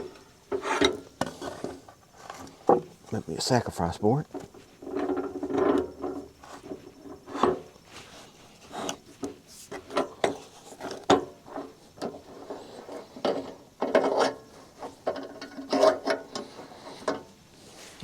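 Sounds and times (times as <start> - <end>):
wooden boards knocking and scraping: 0.0 - 3.0, 4.3 - 7.7.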